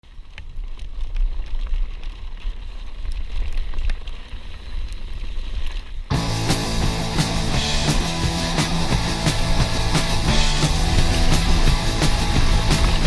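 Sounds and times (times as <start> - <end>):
small clicks and rattles: 0.1 - 5.9
wind buffeting microphone: 8.1 - 13.0.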